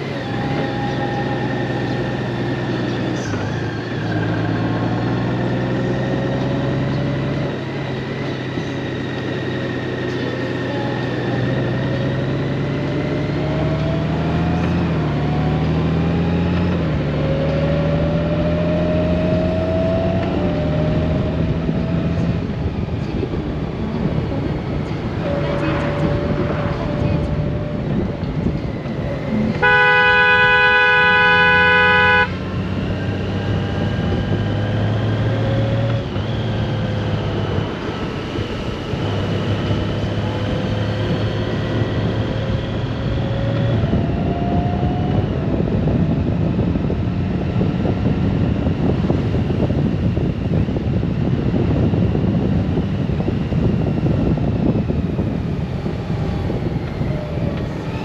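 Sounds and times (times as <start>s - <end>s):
motorcycle engine running: 0.0s - 58.0s
road noise: 0.0s - 58.0s
vehicle horn blaring: 25.2s - 26.9s, 29.6s - 32.5s.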